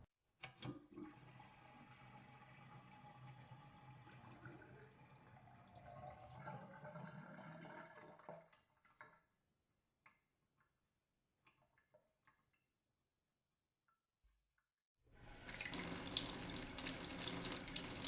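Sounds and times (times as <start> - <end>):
water gurgling down a sink: 0.8 - 9.3
water drips: 15.2 - 18.0.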